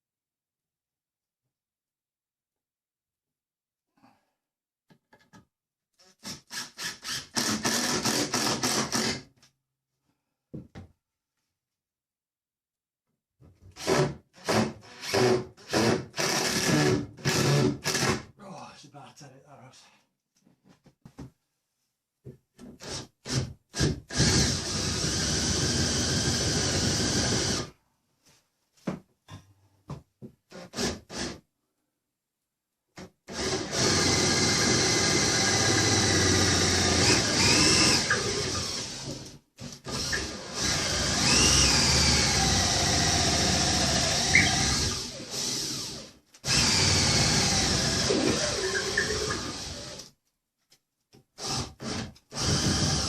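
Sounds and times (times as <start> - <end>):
power drill running: 6.6 - 9.2, 13.8 - 18.1, 23.8 - 27.7, 33.3 - 50.1, 51.4 - 53.0.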